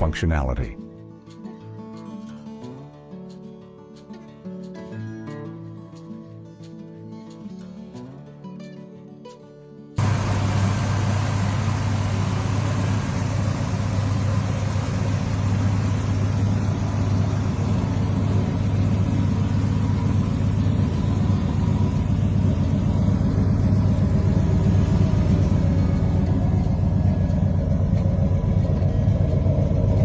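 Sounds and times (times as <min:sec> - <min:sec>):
car engine running: 0:10.0 - 0:30.0.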